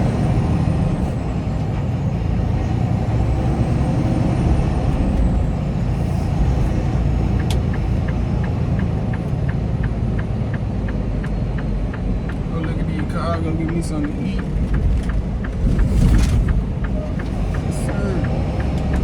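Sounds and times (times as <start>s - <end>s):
truck engine low rumble: 0.0s - 19.0s
regular light ticking: 5.9s - 19.0s.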